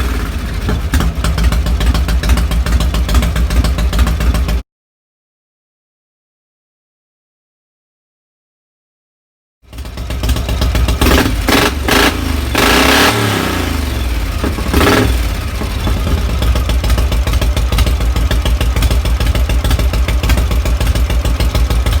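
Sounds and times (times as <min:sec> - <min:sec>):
motorcycle engine revving and idling: 0:00.0 - 0:04.6, 0:09.6 - 0:22.0.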